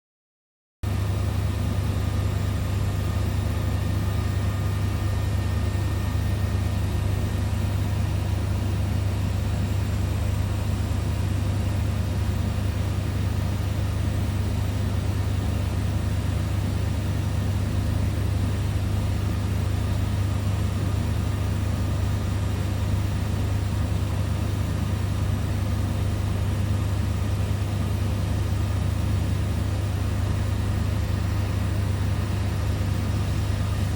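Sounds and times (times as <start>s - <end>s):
machine low hum: 0.9s - 22.5s.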